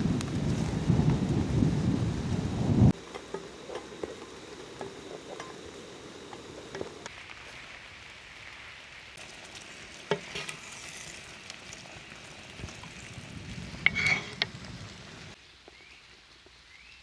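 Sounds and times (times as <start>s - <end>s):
chicken sizzling in a pan: 0.0s - 17.0s
utensil clinking: 3.0s - 7.1s.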